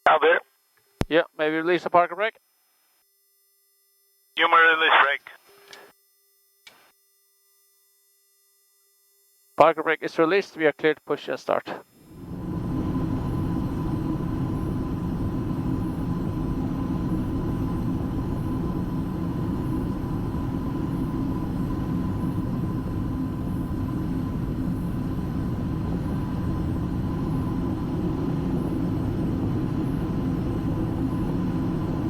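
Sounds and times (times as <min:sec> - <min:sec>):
cockpit low rumble: 0:12.2 - 0:32.0.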